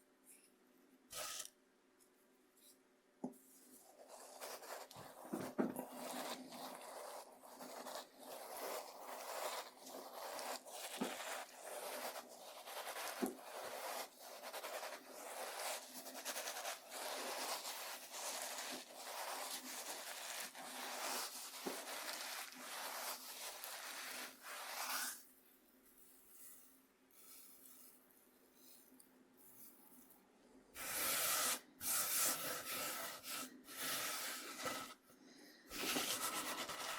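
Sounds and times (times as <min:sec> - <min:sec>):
cornmeal scraping on cutting board: 0:03.6 - 0:25.3, 0:26.0 - 0:28.0, 0:30.8 - 0:35.0, 0:35.7 - 0:36.9.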